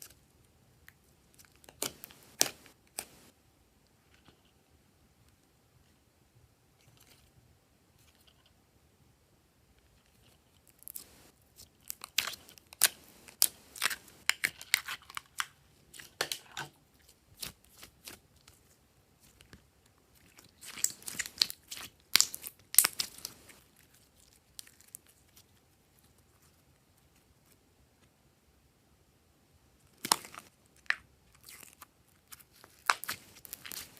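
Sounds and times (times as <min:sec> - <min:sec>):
slime crackling and popping: 0:01.3 - 0:03.3, 0:10.6 - 0:16.6, 0:20.2 - 0:25.4, 0:29.9 - 0:33.9.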